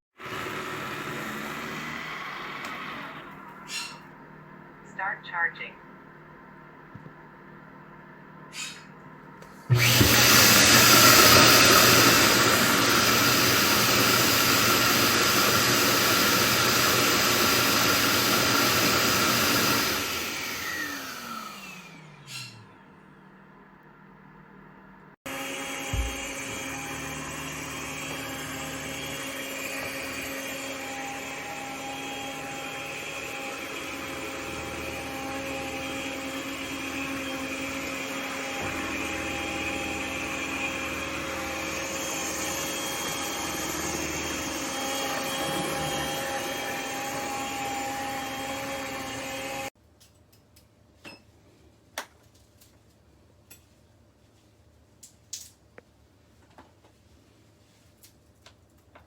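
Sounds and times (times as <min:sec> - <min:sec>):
robot vacuum motor whining: 0:09.7 - 0:22.8, 0:25.3 - 0:49.7.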